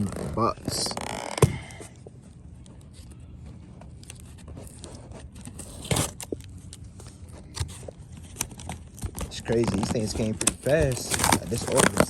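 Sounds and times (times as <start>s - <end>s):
cardboard and packaging rustling: 0.0s - 12.0s
cardboard tearing: 4.4s - 6.3s, 7.5s - 12.0s.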